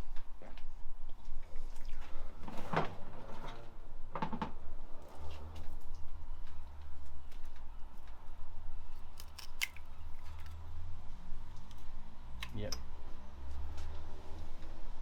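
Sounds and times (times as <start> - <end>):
knocks and clatters: 4.1 - 4.6.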